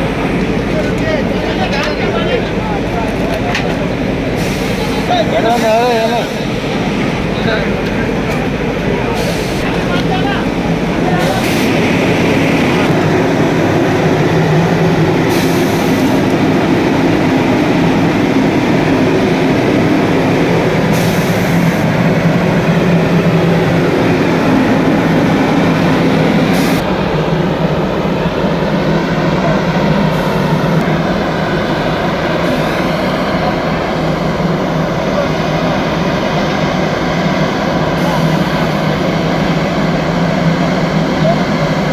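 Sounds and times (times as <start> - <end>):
dense background noise: 0.0 - 41.9
loud engine rumble: 0.0 - 41.9.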